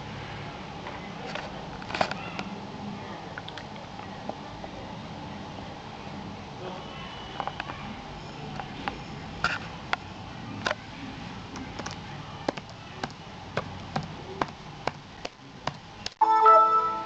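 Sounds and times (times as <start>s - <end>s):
electronic chime: 16.2s - 17.0s.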